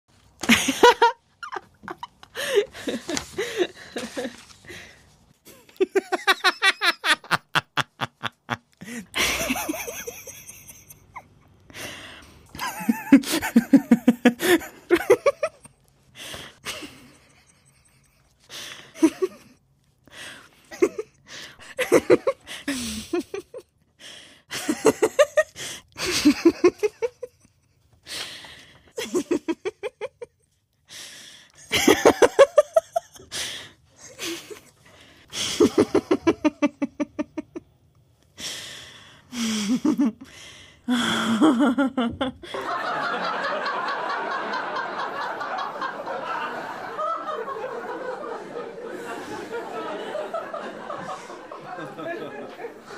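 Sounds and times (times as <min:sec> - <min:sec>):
person laughing: 0:00.4 - 0:04.9, 0:05.5 - 0:11.3, 0:12.6 - 0:15.7, 0:35.4 - 0:37.6, 0:40.9 - 0:42.8.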